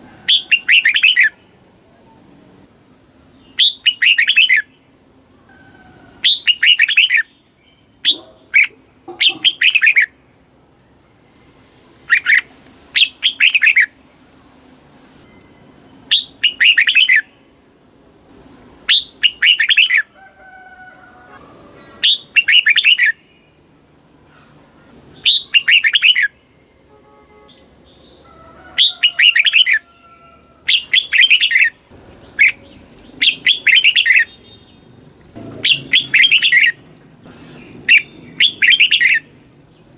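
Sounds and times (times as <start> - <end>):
bulbul singing: 0.3 - 1.6, 3.3 - 4.9, 6.2 - 10.2, 15.2 - 17.5, 18.8 - 20.2, 21.8 - 29.9, 30.6 - 39.9
faint bird calls: 8.0 - 10.2, 27.5 - 39.3.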